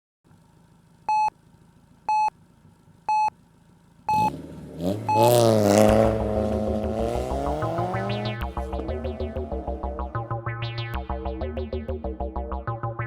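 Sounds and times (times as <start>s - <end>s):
car engine revving: 0.3s - 11.4s
short electronic beeps: 1.1s - 1.3s, 2.1s - 2.3s, 3.1s - 3.3s, 4.1s - 4.3s, 5.1s - 5.4s.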